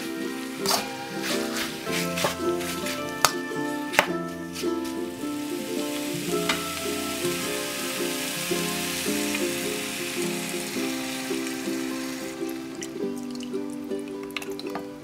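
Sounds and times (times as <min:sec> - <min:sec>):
chicken sizzling in wok: 0:00.0 - 0:03.9, 0:04.5 - 0:13.3
background music: 0:00.0 - 0:15.0.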